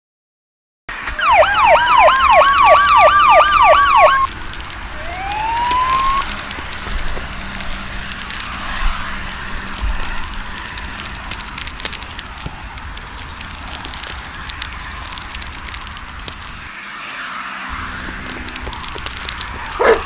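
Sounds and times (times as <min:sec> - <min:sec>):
siren yelp and wail: 0:00.9 - 0:04.3, 0:04.9 - 0:07.2, 0:16.7 - 0:20.0
crackling hiss: 0:00.9 - 0:20.0
scattered clicks: 0:01.0 - 0:16.8, 0:17.7 - 0:20.0.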